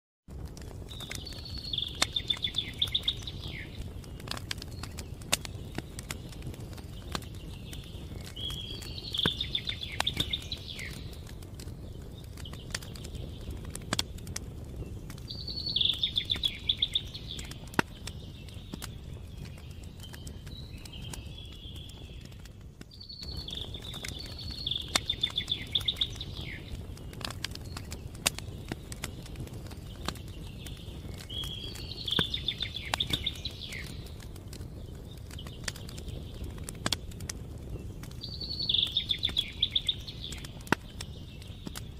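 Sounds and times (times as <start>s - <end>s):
campfire crackling and popping: 0.3s - 41.9s
songbird trilling: 15.3s - 17.6s, 23.0s - 26.7s, 38.3s - 40.6s.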